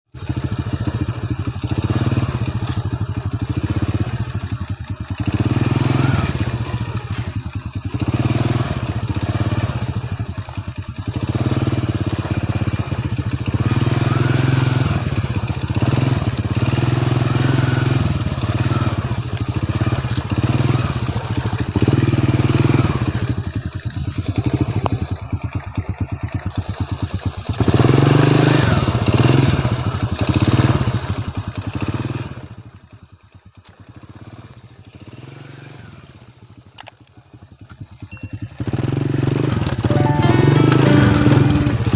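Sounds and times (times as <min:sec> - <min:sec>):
motorcycle engine revving: 0:00.2 - 0:40.4.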